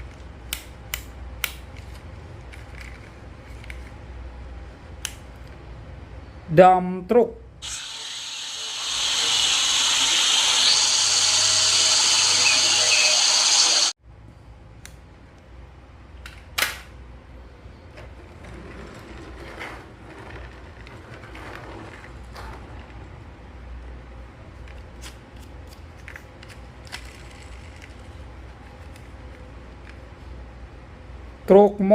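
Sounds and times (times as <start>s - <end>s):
toy motor whirring: 7.6s - 13.9s.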